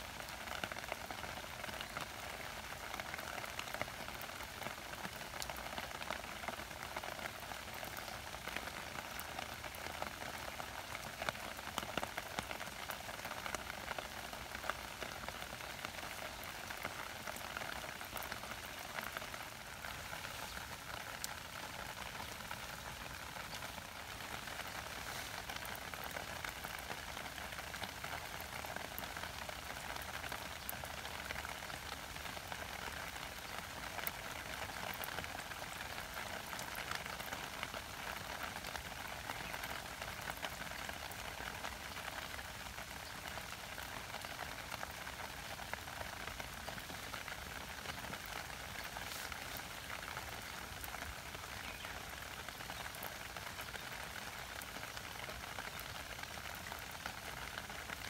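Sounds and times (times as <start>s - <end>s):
rain on stones and plants: 0.0s - 58.0s.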